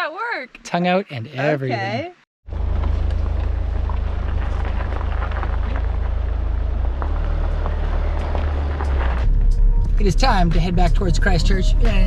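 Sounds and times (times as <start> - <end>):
tyre and road ticks: 2.5 - 9.5
car engine and road rumble: 2.5 - 12.0.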